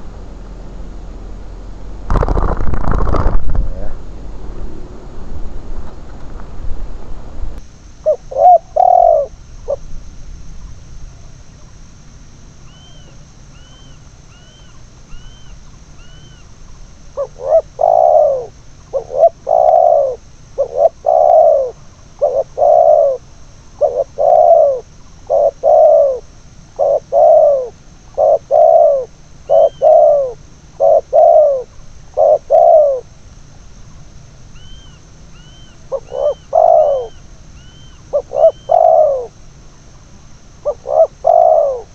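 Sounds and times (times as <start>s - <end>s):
dove cooing: 2.1s - 5.2s, 8.0s - 10.0s, 12.7s - 33.2s, 34.0s - 39.8s, 40.6s - 41.9s
small bird chirping: 12.6s - 33.0s, 33.9s - 40.0s, 40.6s - 41.9s.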